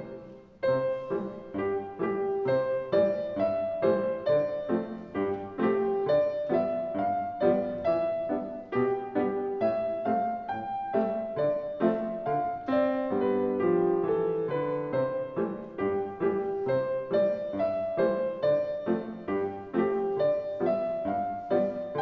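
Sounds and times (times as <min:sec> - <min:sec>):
piano duet: 0:00.0 - 0:22.0.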